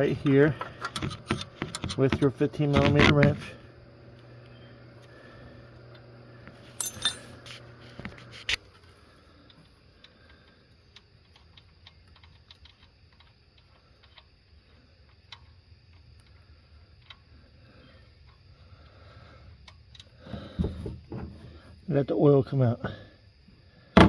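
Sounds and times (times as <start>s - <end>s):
faint irregular ticks: 8.8s - 20.2s.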